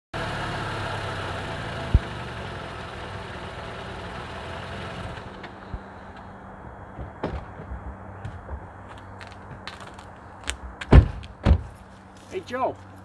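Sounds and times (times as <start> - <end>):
car engine idling: 0.2 - 7.2.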